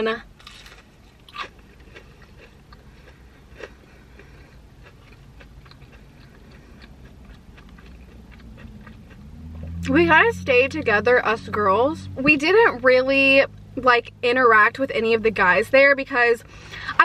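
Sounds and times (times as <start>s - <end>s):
chewing crispy fried food: 0.4s - 9.9s.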